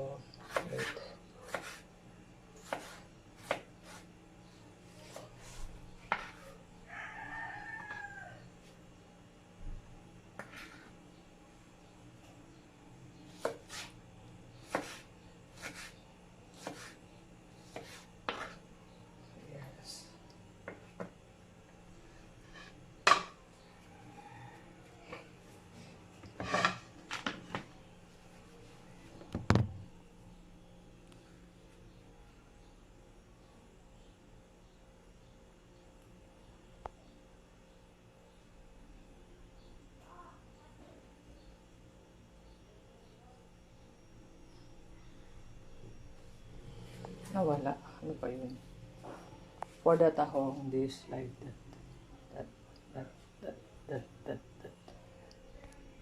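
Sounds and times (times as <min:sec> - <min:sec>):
knife chopping on cutting board: 0:00.4 - 0:01.8, 0:02.6 - 0:04.0, 0:14.6 - 0:15.0, 0:16.6 - 0:17.0
rooster crowing: 0:06.8 - 0:08.6, 0:23.8 - 0:25.3.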